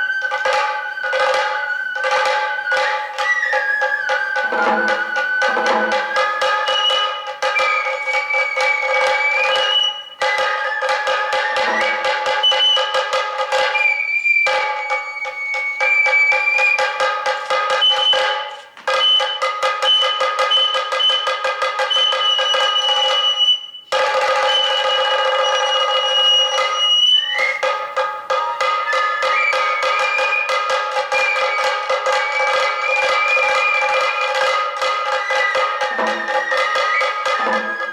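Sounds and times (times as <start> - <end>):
bamboo flute high notes: 0.0 - 37.9
fast dense drumming: 4.2 - 7.3, 30.4 - 37.9.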